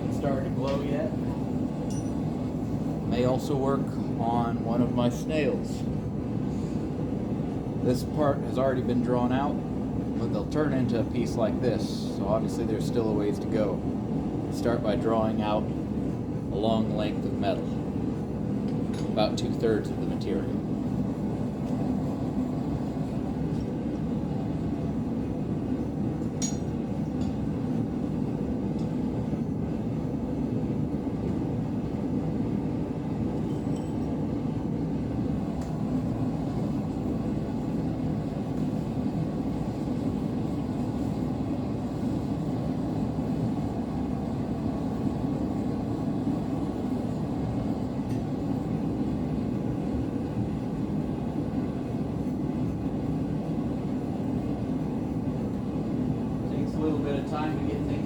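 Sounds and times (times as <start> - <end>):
forge burner rushing: 0.0 - 58.0
faint metal clinks: 1.9 - 2.2.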